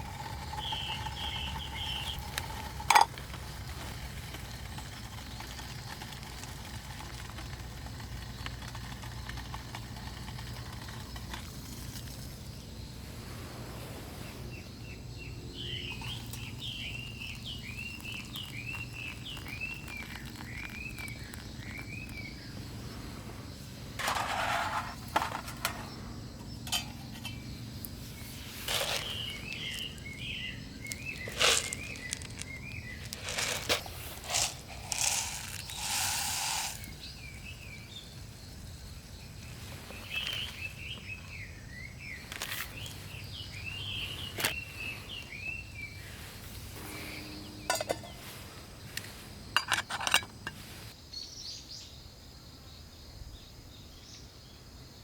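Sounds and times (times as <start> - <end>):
birds chirping: 0.0 - 2.9, 14.4 - 23.7, 25.7 - 49.7.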